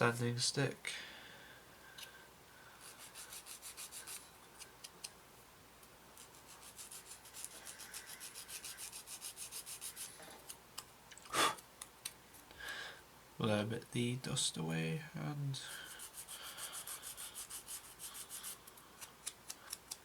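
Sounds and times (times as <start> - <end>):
sanding stick rubbing plastic: 2.9 - 4.2, 6.2 - 10.2, 15.9 - 18.6.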